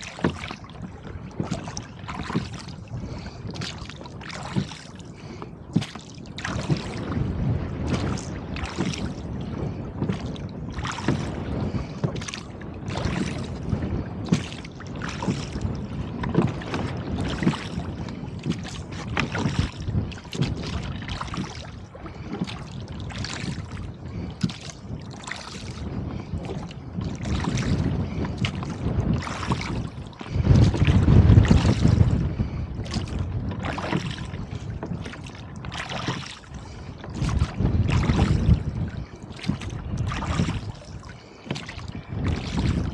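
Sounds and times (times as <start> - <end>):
water slapping against a boat: 0.0 - 42.9
wind rumble on microphone: 0.0 - 42.9.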